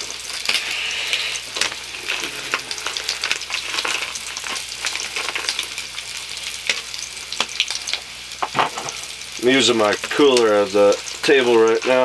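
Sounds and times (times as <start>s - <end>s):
bacon sizzling in a pan: 0.0s - 12.0s
fat popping and crackling: 1.4s - 9.1s.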